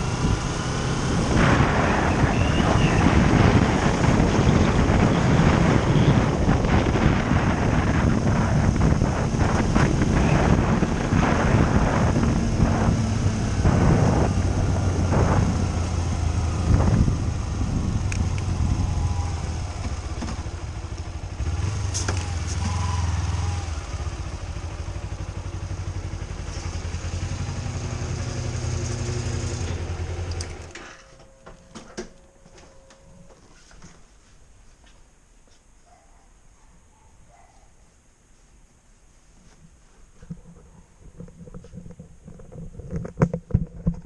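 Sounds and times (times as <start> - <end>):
wind noise: 0.0 - 24.1
vehicle engine running: 0.0 - 30.8.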